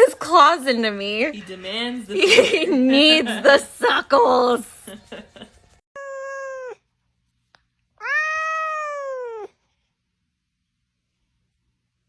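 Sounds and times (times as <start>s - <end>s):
cat meowing: 6.0s - 6.8s, 8.0s - 9.6s.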